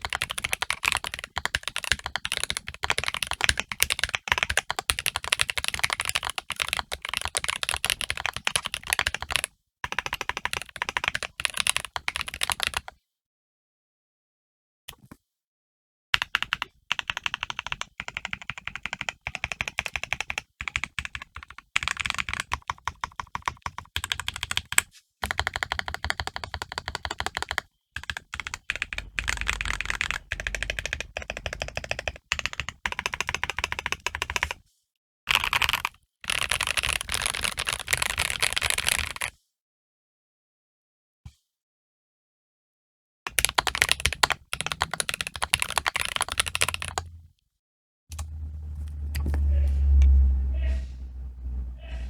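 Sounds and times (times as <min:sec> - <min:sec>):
mechanical keyboard typing: 0:00.0 - 0:12.9, 0:16.2 - 0:34.6, 0:35.3 - 0:39.3, 0:43.3 - 0:47.2.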